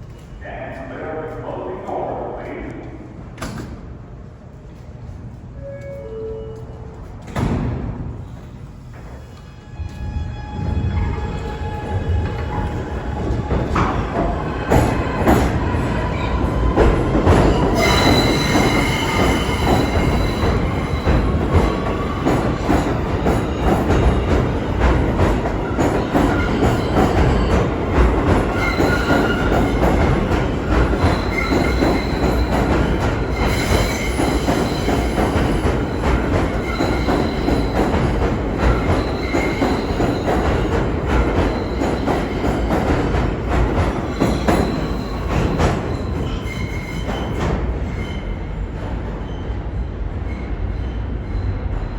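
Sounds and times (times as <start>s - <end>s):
subway train rumble and clatter: 0.0s - 51.9s
high-pitched wheel squeal: 17.6s - 21.2s.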